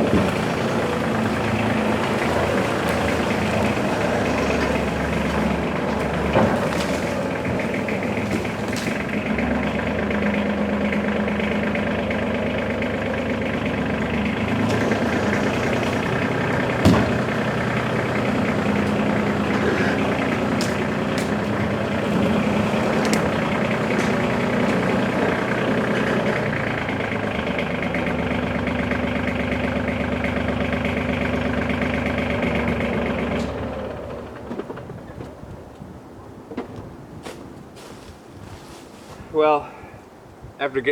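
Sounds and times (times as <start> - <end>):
sharp knocks and rattles: 0.0 - 29.5
vehicle engine running: 0.0 - 39.1.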